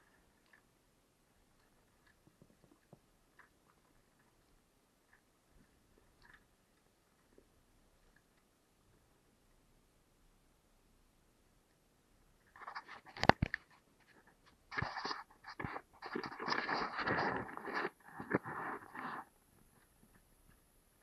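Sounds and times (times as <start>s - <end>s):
scraping and crunching: 12.6s - 19.3s.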